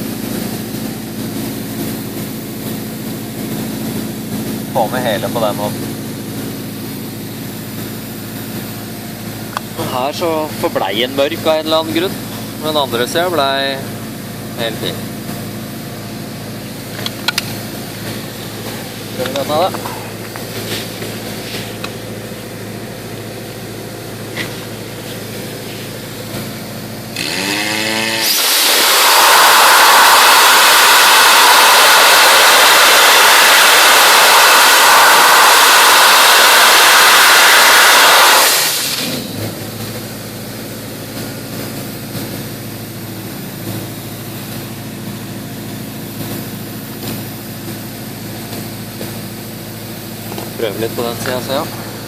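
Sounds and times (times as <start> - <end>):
machine hum: 0.0 - 52.0
compressed air hiss: 27.2 - 39.3.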